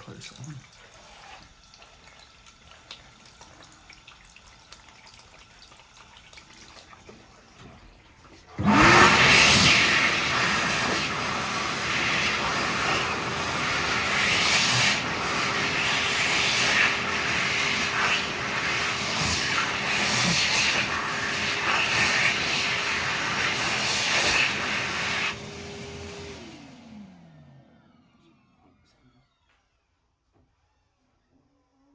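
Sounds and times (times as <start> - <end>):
hand dryer running: 7.1 - 27.6.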